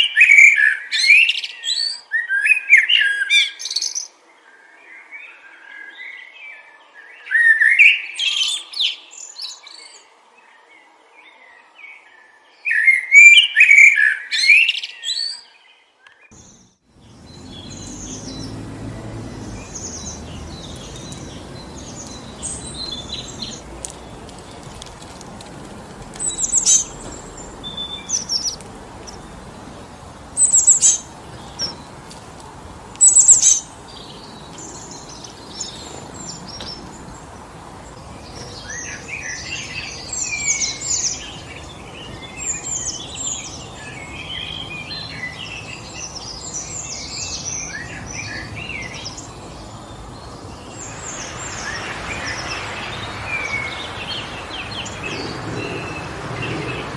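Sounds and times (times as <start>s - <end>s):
wind blowing through trees: 0.0s - 56.9s
small birds chirping: 16.0s - 56.9s.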